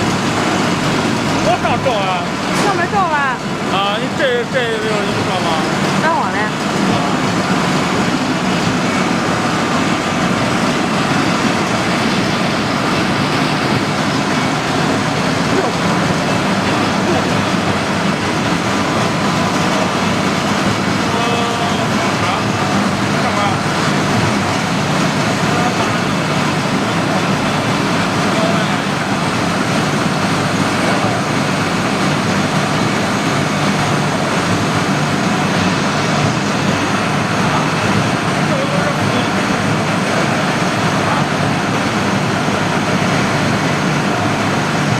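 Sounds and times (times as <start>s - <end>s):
industrial machinery running: 0.0s - 44.9s.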